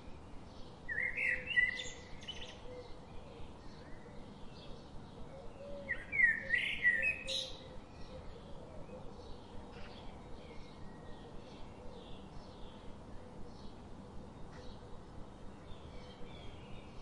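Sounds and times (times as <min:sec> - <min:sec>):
faint bird chirps: 0:00.9 - 0:13.8.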